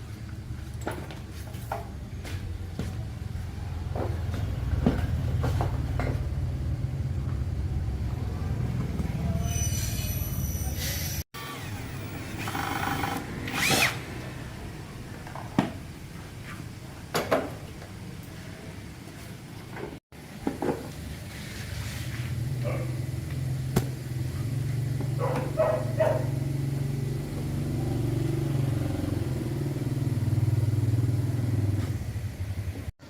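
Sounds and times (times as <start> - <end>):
motor humming: 11.4 - 14.2.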